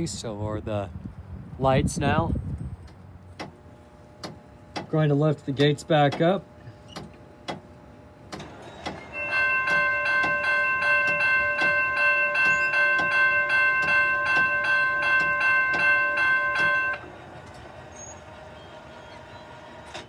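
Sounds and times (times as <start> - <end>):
railroad crossing bell ringing: 9.0 - 17.2.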